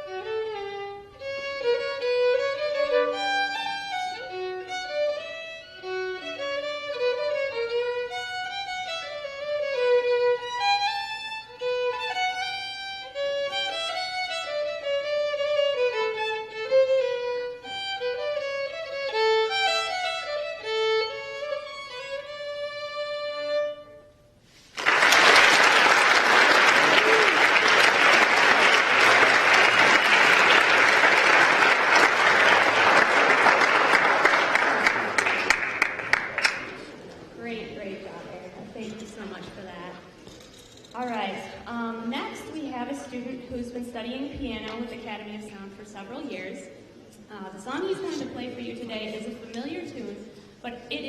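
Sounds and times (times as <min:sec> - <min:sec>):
violin melody: 0:00.0 - 0:24.6
audience applauding: 0:24.6 - 0:37.1.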